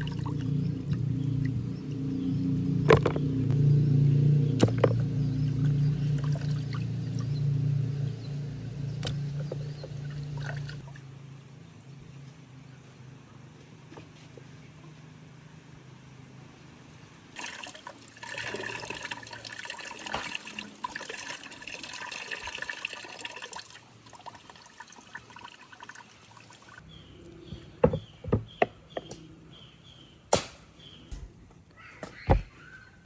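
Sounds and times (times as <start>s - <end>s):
water pouring into container: 0.0s - 2.0s, 4.6s - 7.4s, 9.0s - 11.0s, 17.4s - 26.8s
sharp knocks: 30.3s - 31.4s.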